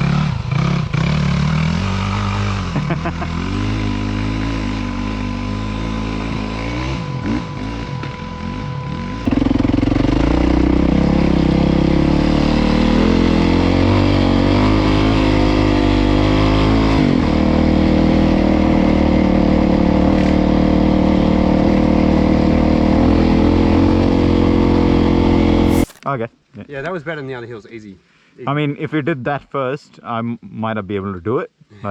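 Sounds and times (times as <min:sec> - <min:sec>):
dirt bike engine revving: 0:00.0 - 0:16.9, 0:25.3 - 0:26.0.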